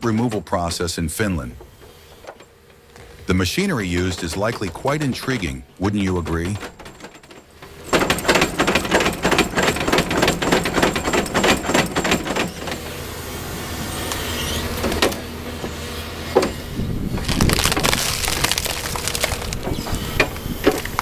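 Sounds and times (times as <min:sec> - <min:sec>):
machine noise: 0:00.0 - 0:21.0
wood and roots breaking: 0:17.1 - 0:21.0.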